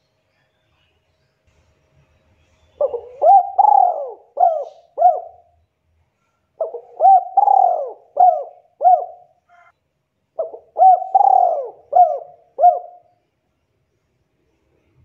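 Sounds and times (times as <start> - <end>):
dove cooing: 2.8 - 5.5, 6.6 - 9.7, 10.4 - 13.1.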